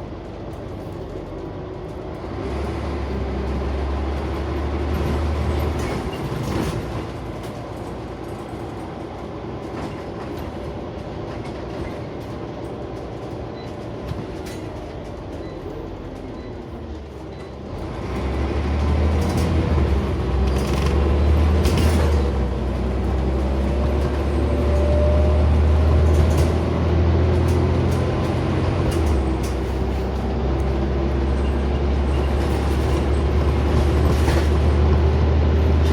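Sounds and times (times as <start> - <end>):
bus engine drone: 0.0 - 35.9
bus interior rattles and clicks: 0.0 - 35.9.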